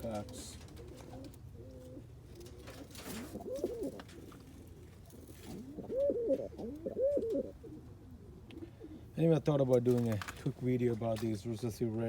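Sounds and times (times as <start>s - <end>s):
pigeons cooing: 0.0s - 9.3s.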